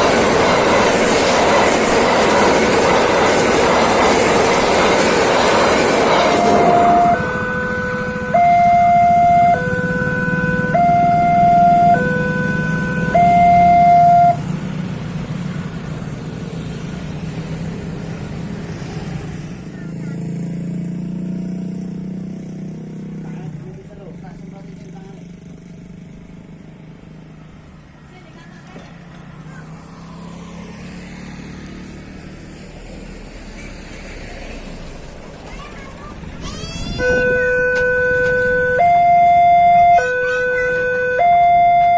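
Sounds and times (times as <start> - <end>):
road traffic rumble: 0.0 - 41.9
vehicles passing: 0.0 - 41.9
level crossing siren two-tone wail: 6.0 - 14.4, 36.9 - 41.9.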